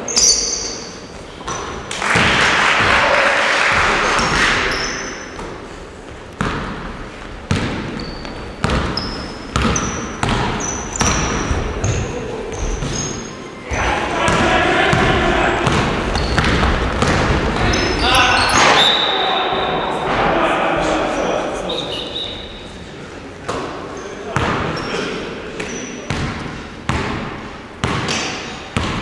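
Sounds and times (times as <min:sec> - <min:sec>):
sneaker squeaks: 0:00.0 - 0:01.9, 0:04.2 - 0:05.7, 0:07.5 - 0:13.7, 0:15.7 - 0:20.1, 0:21.2 - 0:22.8, 0:23.9 - 0:26.2
basketballs bouncing on gym floor: 0:06.3 - 0:18.9, 0:24.4 - 0:24.8, 0:25.6 - 0:29.0.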